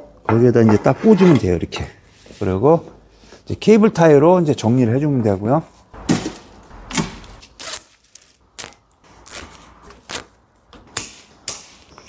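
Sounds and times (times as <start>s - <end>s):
cable ties zipping tight: 6.9s - 10.4s.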